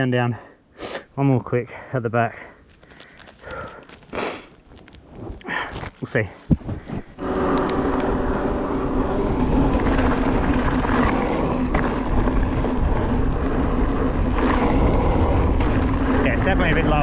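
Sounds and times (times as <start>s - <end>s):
steady low hum: 6.4s - 17.0s
wind rushing over microphone: 6.4s - 17.0s.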